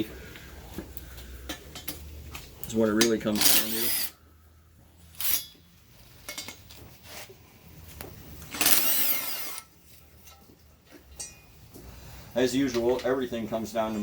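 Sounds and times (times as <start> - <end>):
metallic clink: 5.2 - 6.7, 11.1 - 11.5
power tool burst: 8.5 - 9.6.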